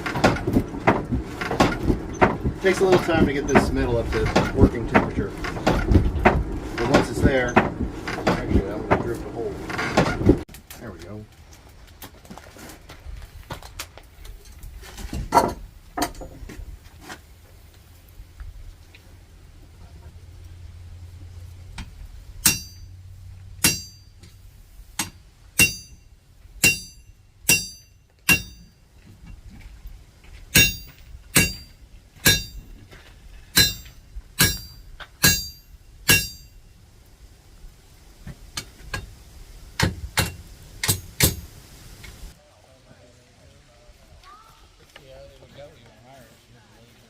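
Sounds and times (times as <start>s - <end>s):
hammer striking iron on anvil: 22.4s - 22.9s, 23.6s - 24.4s, 25.0s - 28.8s, 30.5s - 32.7s, 33.5s - 36.6s, 39.8s - 41.4s.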